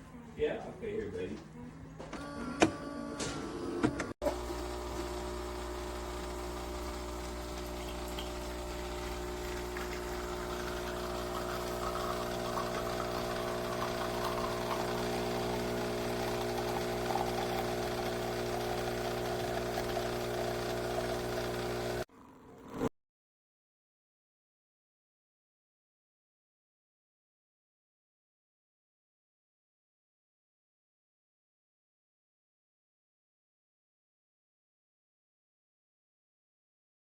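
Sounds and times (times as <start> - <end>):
espresso machine pump humming: 2.2 - 22.1
water rushing through machine: 4.3 - 22.0.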